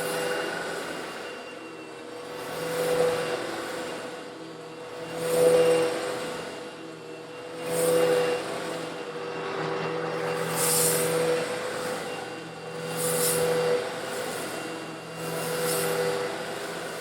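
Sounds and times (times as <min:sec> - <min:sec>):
vacuum cleaner motor hum: 0:00.0 - 0:17.0.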